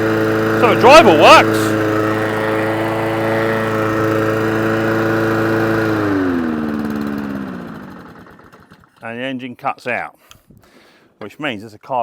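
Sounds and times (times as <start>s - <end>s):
lawnmower engine running: 0.0s - 9.0s.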